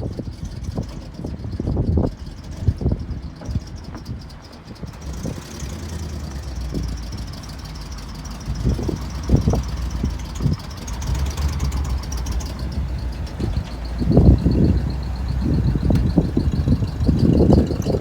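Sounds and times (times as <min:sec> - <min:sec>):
truck engine idling: 0:00.0 - 0:18.0
low thumps: 0:08.4 - 0:18.0.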